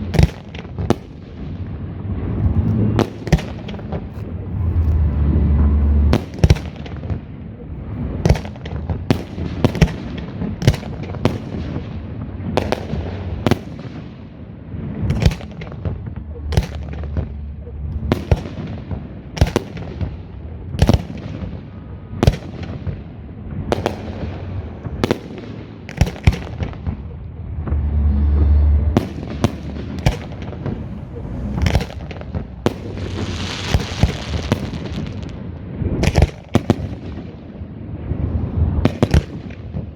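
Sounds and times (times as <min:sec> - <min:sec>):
continuous rumble: 0:00.0 - 0:39.9
deep fireworks booms: 0:00.0 - 0:39.9
fireworks bursting: 0:00.0 - 0:39.9
hissing firework burst: 0:20.8 - 0:37.0.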